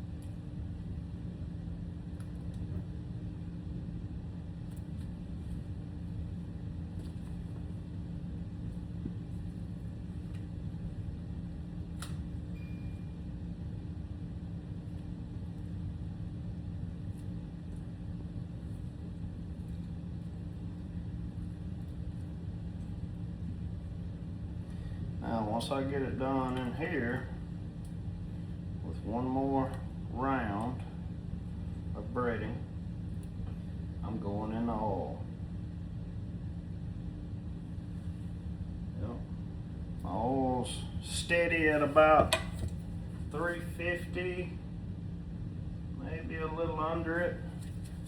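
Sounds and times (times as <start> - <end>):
constant hum: 0.0 - 48.0.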